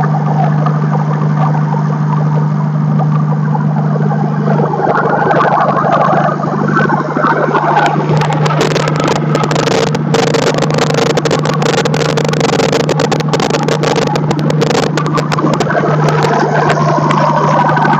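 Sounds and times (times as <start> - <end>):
diesel engine droning: 0.0 - 17.9.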